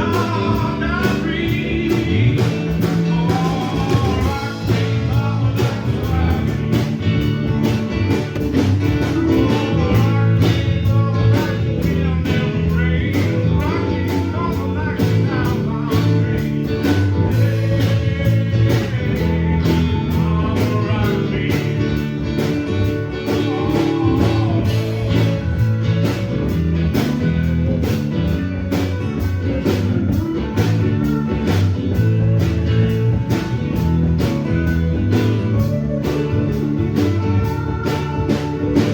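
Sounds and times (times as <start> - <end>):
person singing: 0.0 - 7.5, 8.9 - 25.8
blues rock band playing: 0.0 - 38.9.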